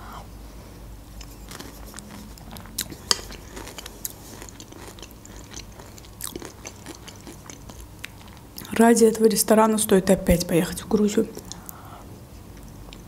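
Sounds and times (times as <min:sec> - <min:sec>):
chewing soup: 0:01.2 - 0:09.3, 0:10.9 - 0:11.8.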